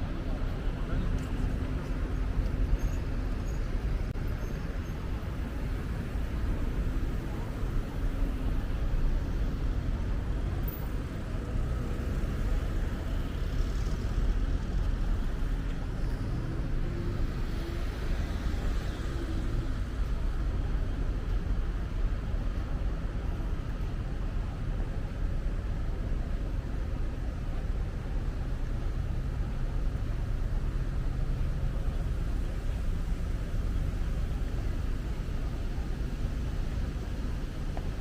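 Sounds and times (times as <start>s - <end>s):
rumble of passing cars: 0.0s - 38.0s.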